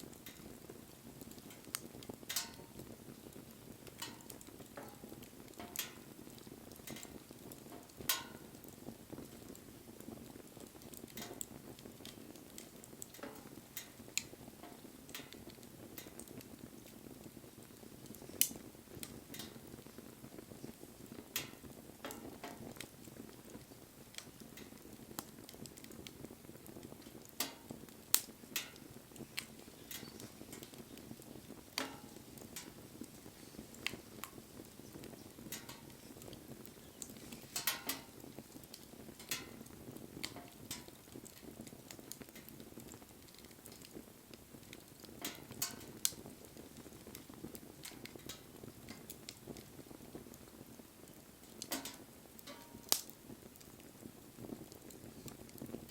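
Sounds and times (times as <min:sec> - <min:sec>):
flames rushing: 0:00.0 - 0:55.9
wood fire crackling: 0:00.0 - 0:55.9.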